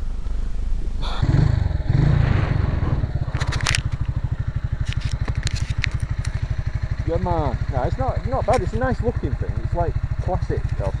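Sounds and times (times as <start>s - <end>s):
motorcycle engine idling: 0.0s - 11.0s
motorcycle engine revving: 0.0s - 11.0s
sharp clicks: 4.8s - 6.6s, 8.4s - 8.8s.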